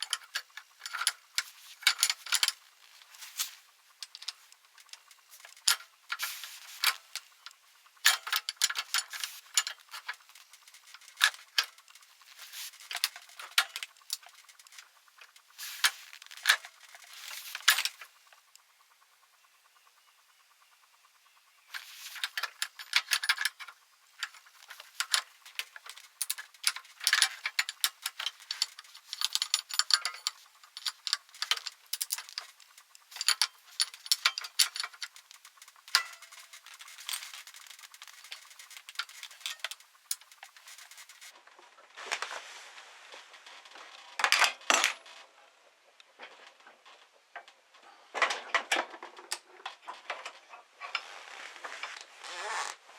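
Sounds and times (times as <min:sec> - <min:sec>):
metal tools clinking: 0:00.0 - 0:04.5, 0:05.4 - 0:14.8, 0:15.6 - 0:18.1, 0:21.8 - 0:41.3.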